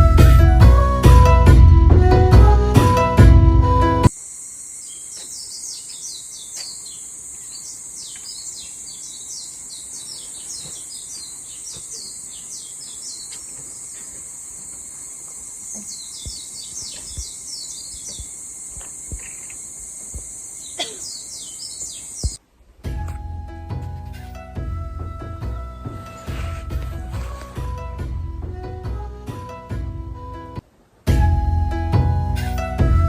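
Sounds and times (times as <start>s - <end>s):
high insect buzz: 4.0s - 22.4s, 25.4s - 27.8s
small birds chirping: 4.6s - 22.4s
soft low thumps: 16.2s - 20.4s, 22.2s - 29.1s.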